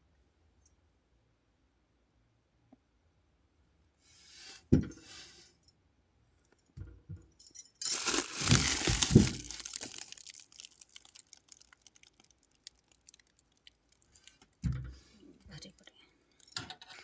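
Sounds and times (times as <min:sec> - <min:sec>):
rustling and crinkling: 0:07.8 - 0:16.6.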